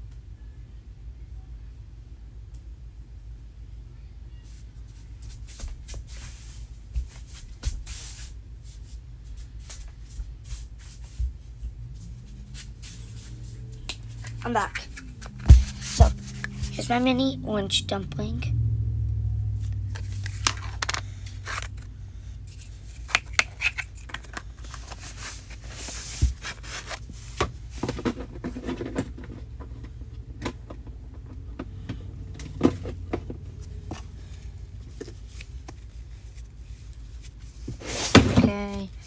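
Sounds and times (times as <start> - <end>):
low hum: 11.3 - 24.1
plastic containers handled: 11.9 - 17.3, 19.7 - 29.9, 32.5 - 39.0.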